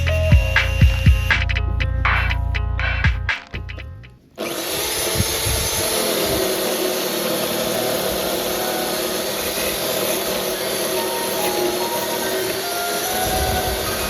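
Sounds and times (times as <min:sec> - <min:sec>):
power tool running: 0:04.4 - 0:14.0.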